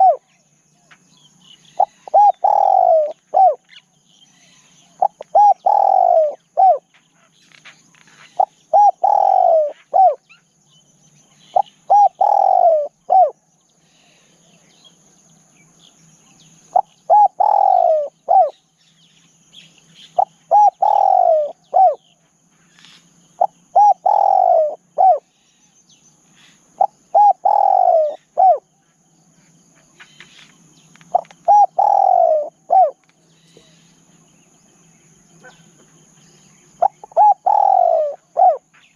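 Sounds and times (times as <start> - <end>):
dove cooing: 0.0 - 0.4, 1.7 - 3.8, 4.6 - 7.0, 8.1 - 10.4, 11.4 - 13.4, 16.7 - 18.6, 20.1 - 22.2, 23.3 - 25.3, 26.7 - 28.8, 31.0 - 33.8, 36.7 - 38.9.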